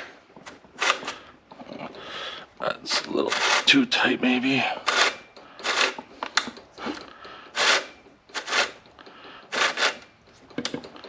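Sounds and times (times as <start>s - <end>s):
chainsaw chain scraping on bar: 3.2s - 3.8s, 4.9s - 6.0s, 7.6s - 8.8s, 9.5s - 10.1s.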